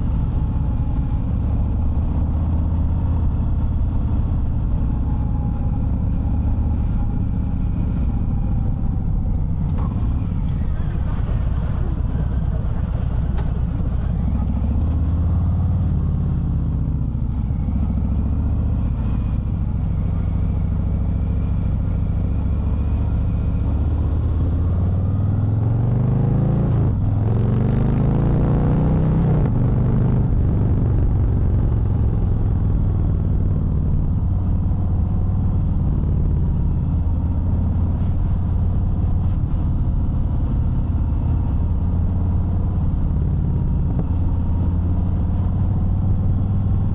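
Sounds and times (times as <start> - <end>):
motorcycle engine running: 0.0 - 46.9
wind noise: 29.1 - 46.9.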